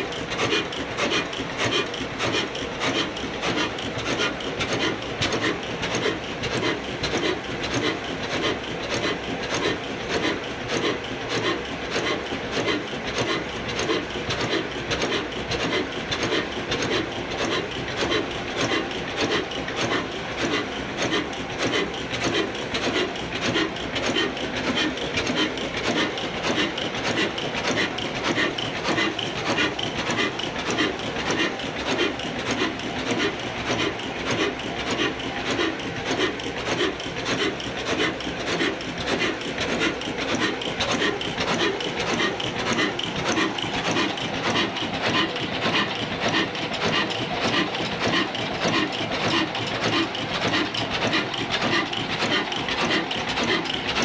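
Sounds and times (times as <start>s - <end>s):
diesel engine running steadily: 0.0s - 54.0s.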